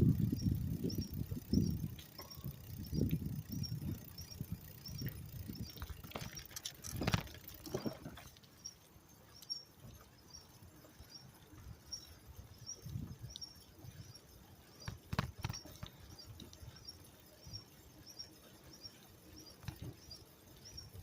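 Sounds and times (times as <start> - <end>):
rattle of clicks: 0.1 - 8.4, 14.8 - 16.7.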